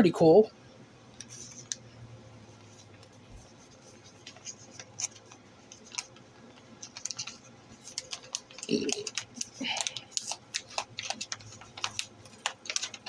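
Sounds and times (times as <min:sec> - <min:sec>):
low steady hum: 0:00.0 - 0:13.0
packaging rustling: 0:02.8 - 0:13.0.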